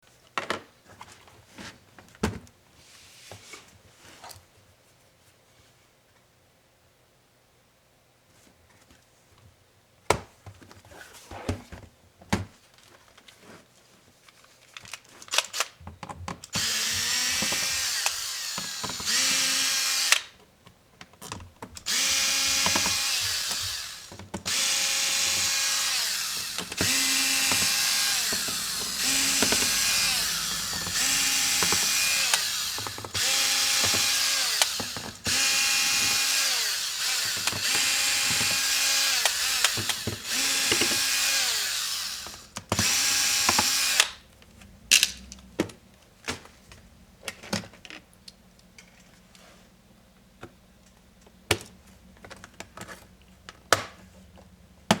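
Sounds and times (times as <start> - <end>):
electric screwdriver whining: 16.6 - 20.3, 21.9 - 44.2.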